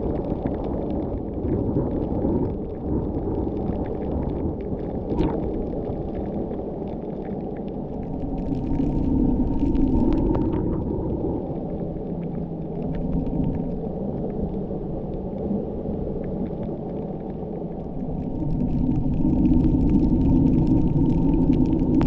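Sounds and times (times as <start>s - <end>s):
droning tone: 8.0s - 22.0s.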